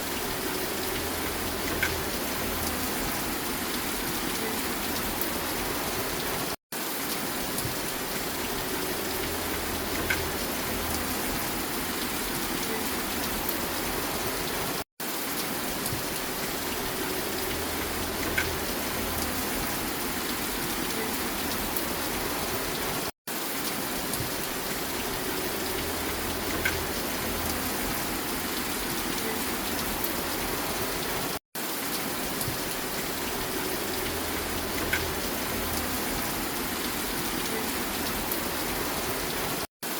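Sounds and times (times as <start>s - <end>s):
steady rain falling: 0.0s - 39.9s
faint drip ticks: 9.2s - 11.2s, 25.6s - 27.8s.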